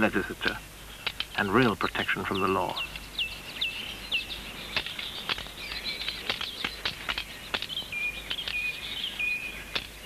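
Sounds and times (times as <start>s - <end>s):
songbird chirping: 0.0s - 10.0s
sharp clicks: 0.4s - 2.0s, 4.7s - 8.8s, 9.7s - 10.0s.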